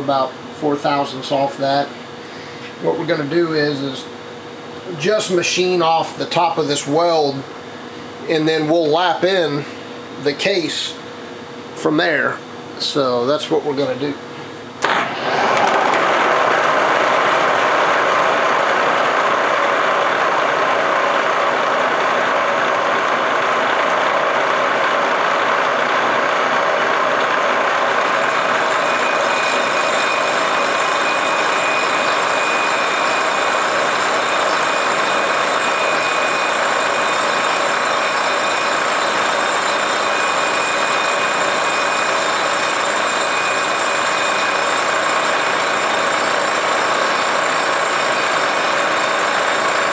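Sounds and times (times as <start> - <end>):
milling machine cutting metal: 14.8 - 49.9
thin high whine: 14.8 - 49.9.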